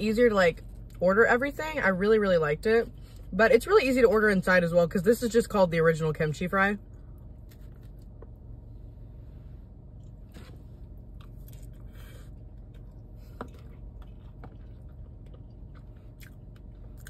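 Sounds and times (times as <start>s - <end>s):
steady low hum: 0.0s - 17.0s
chewing and biting food: 7.2s - 8.4s, 10.0s - 17.0s.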